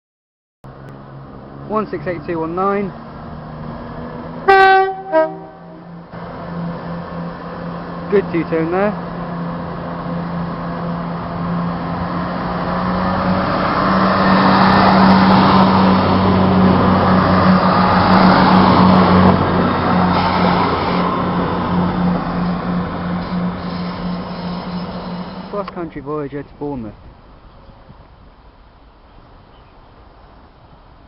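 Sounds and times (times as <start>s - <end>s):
diesel train engine drone: 0.7s - 26.3s
train wheel noise: 17.0s - 25.8s.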